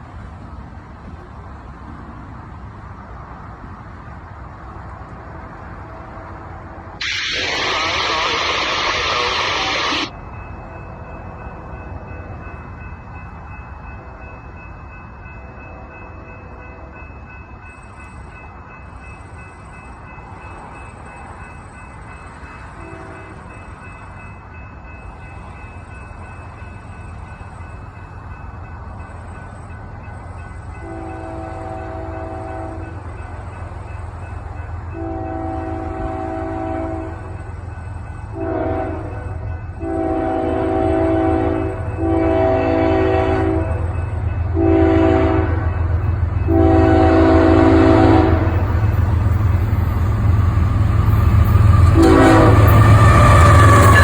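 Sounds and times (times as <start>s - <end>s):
engine and rail rumble: 0.0s - 54.0s
train air horn blasts: 30.8s - 33.0s, 35.0s - 37.2s, 38.4s - 43.9s, 44.6s - 45.6s, 46.5s - 48.6s, 51.8s - 54.0s.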